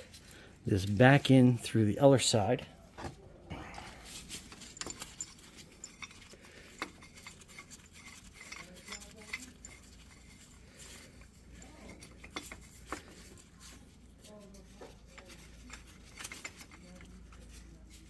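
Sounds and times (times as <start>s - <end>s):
metal tools clinking: 3.0s - 18.0s.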